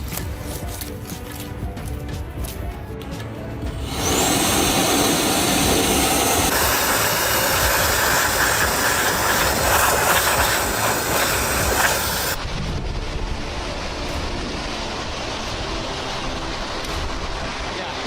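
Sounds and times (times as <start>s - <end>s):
faint music: 0.0s - 5.1s, 6.1s - 18.0s
loud rushing noise: 3.8s - 18.0s.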